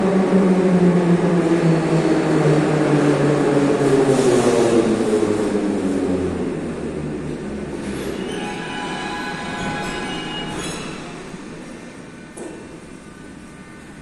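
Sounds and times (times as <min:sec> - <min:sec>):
train wheels rolling on rails: 0:02.8 - 0:14.0.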